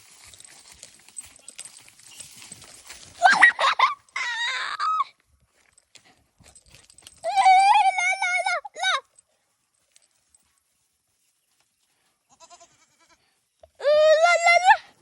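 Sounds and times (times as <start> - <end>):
animals scuffling: 0.0 - 4.2, 5.4 - 8.0
goats bleating: 12.3 - 13.2.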